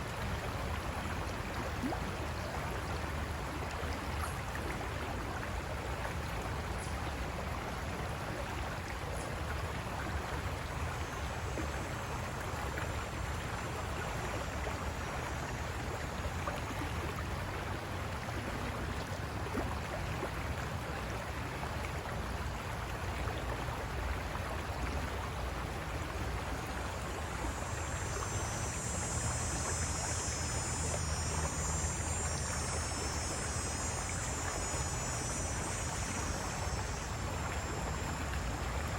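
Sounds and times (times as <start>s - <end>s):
river water running over rocks: 0.0s - 38.9s
high-pitched insect trilling: 27.4s - 38.9s.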